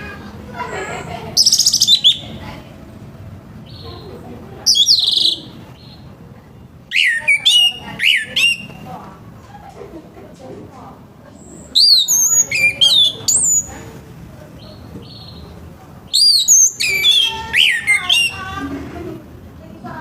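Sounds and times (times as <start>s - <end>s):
thrush singing: 6.9s - 9.0s, 11.7s - 13.8s, 14.6s - 19.2s.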